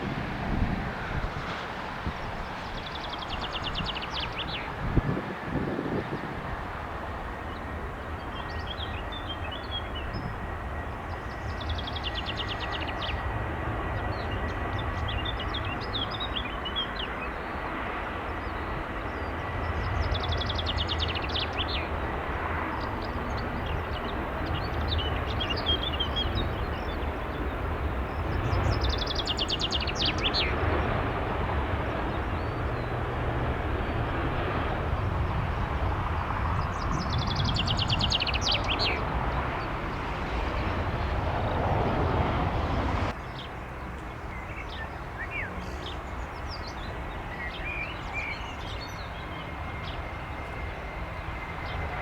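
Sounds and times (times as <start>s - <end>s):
distant jet engines rumbling: 0.0s - 52.0s
birds chirping: 7.0s - 52.0s.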